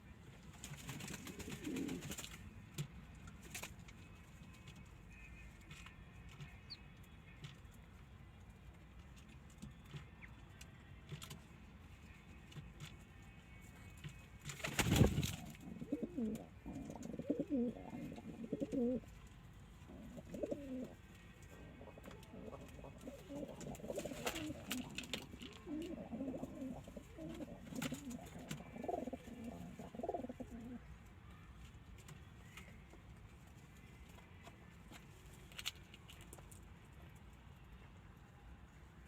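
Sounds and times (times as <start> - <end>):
pigeons cooing: 15.1 - 19.0, 19.9 - 21.0, 21.8 - 30.8.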